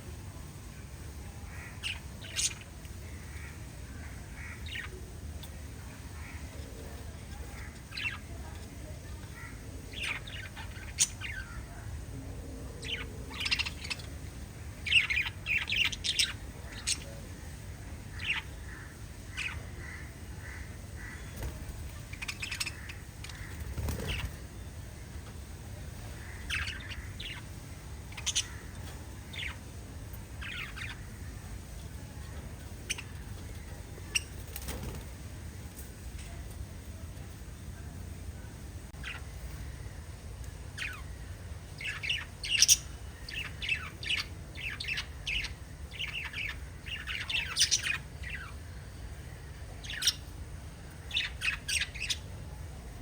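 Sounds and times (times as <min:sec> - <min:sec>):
steady low hum: 0:00.0 - 0:53.0
budgerigars chirping: 0:28.1 - 0:28.7.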